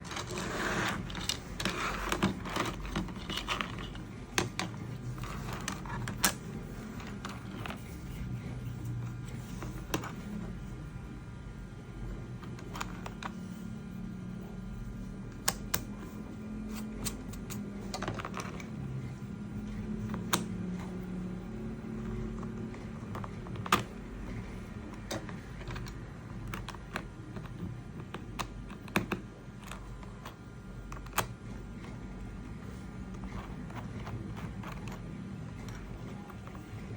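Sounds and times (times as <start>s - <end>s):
plastic parts clicking and tapping: 0.0s - 8.0s, 12.4s - 13.4s, 16.7s - 18.8s, 21.8s - 32.0s, 33.0s - 36.9s
low steady hum: 0.0s - 36.9s.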